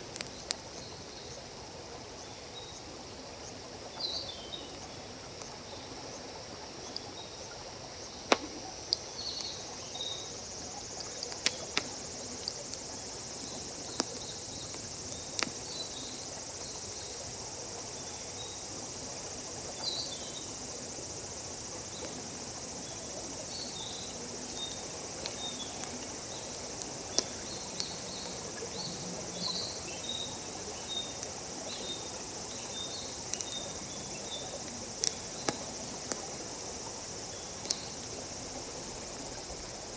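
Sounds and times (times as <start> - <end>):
insects droning and chirping: 0.0 - 39.9
campfire crackling and popping: 10.9 - 12.8, 13.4 - 15.8, 24.3 - 28.6, 33.2 - 38.0.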